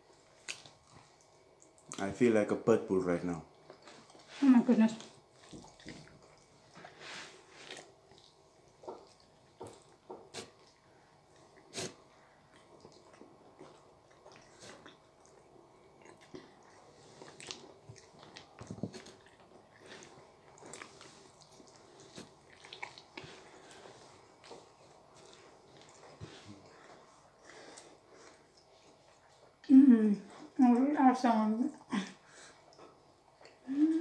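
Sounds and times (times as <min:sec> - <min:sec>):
people biting and chewing: 0:05.1 - 0:29.3.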